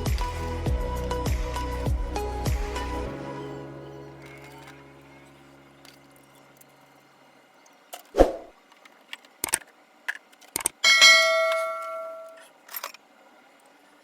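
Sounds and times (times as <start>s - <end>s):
metal piece clanging: 10.6s - 13.0s.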